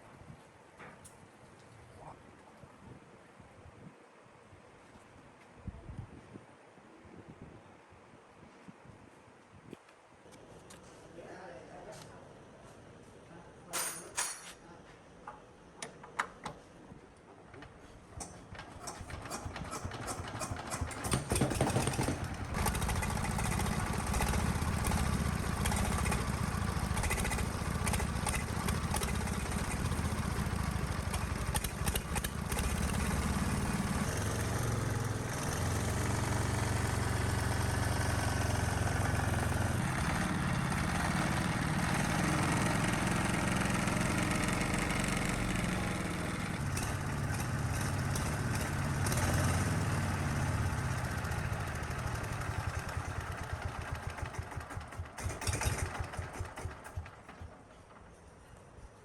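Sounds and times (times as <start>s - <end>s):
diesel engine running: 18.8s - 58.1s.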